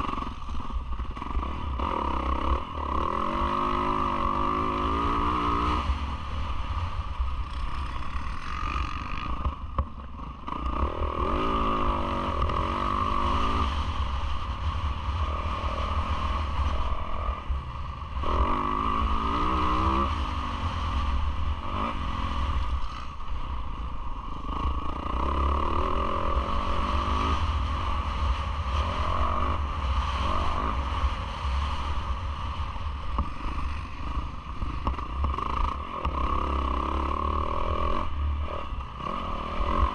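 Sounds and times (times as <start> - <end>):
constant low rumble: 0.0 - 39.9
motocross bike engine revving: 1.1 - 6.4, 10.4 - 14.0, 18.2 - 22.6, 24.4 - 32.5, 33.4 - 39.9.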